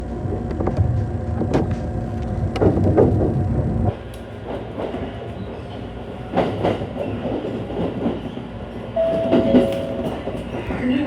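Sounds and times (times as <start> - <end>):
electric train running on rails: 0.0 - 11.0
steady tone: 9.0 - 10.4.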